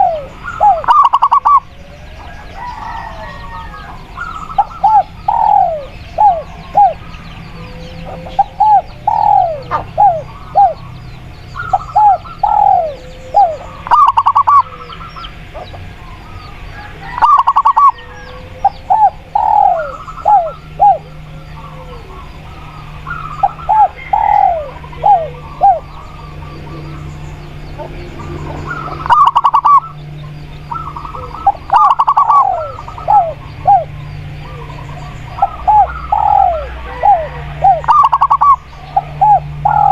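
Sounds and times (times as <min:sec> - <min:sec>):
doves cooing: 0:00.0 - 0:39.9
low steady hum: 0:00.0 - 0:39.9.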